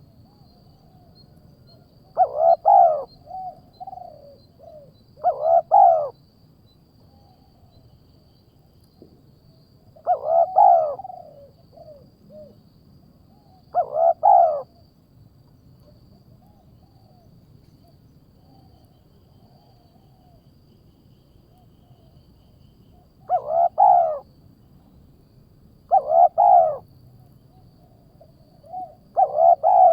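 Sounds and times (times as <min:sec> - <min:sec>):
bird calling: 0:02.1 - 0:06.1, 0:10.0 - 0:12.6, 0:13.7 - 0:14.8, 0:23.2 - 0:24.3, 0:25.9 - 0:26.8, 0:27.5 - 0:29.9.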